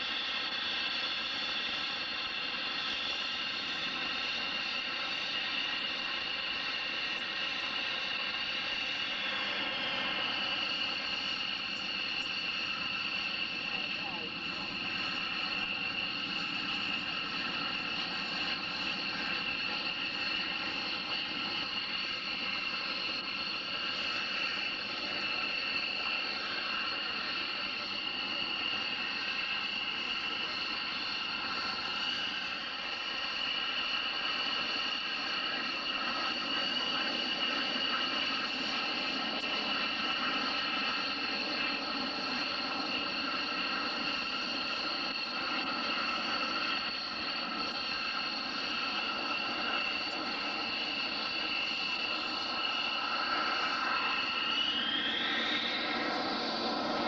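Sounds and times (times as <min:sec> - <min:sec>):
turbine engine whine: 0:00.0 - 0:57.0.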